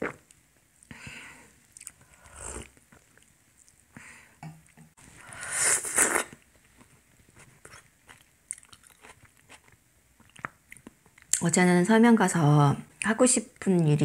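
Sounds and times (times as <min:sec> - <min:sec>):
person chewing food: 0:01.7 - 0:03.9, 0:05.8 - 0:11.4
mouth clicks and smacks: 0:08.1 - 0:11.4.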